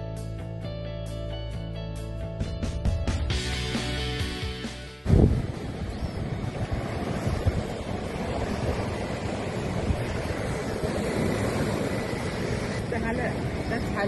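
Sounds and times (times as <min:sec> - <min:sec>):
ocean surf washing: 0:03.6 - 0:14.0
wind buffeting microphone: 0:05.0 - 0:14.0.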